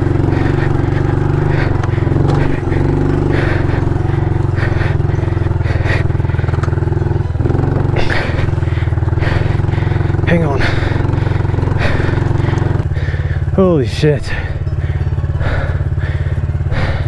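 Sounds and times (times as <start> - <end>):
knocks and clatter from bike: 0.0 - 13.4
pit bike engine running: 0.0 - 17.0.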